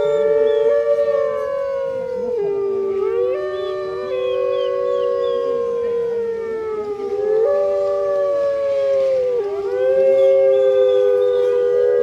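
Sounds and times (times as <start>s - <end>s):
wolves howling in chorus: 0.0s - 12.0s.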